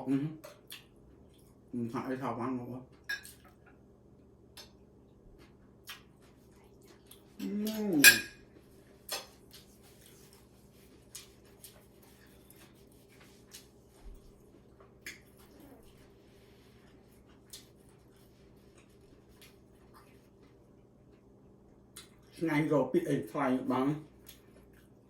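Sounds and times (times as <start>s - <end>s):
low steady hum: 0.0s - 25.0s
utensils clinking on dishes: 3.1s - 3.4s, 8.0s - 8.4s.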